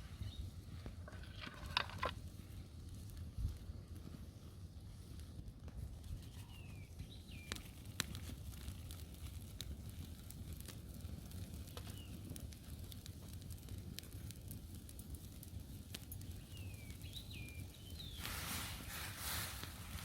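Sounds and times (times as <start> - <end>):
campfire crackling and popping: 0.0 - 20.0
small bird chirping: 16.2 - 18.3.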